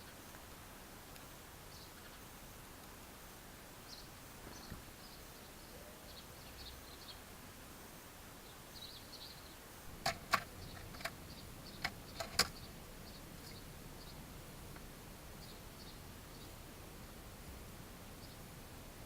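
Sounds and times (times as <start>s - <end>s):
sharp clicks: 10.0s - 12.6s.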